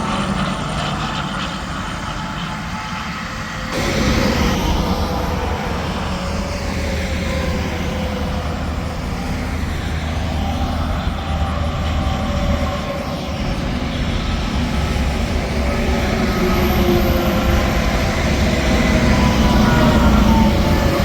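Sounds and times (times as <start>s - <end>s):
highway traffic tyre noise: 0.0s - 21.0s
low diesel drone: 0.0s - 21.0s.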